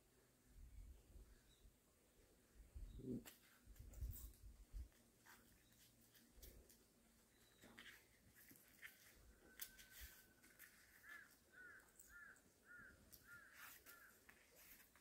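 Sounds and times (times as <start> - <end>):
faint bird calling: 8.9 - 14.8.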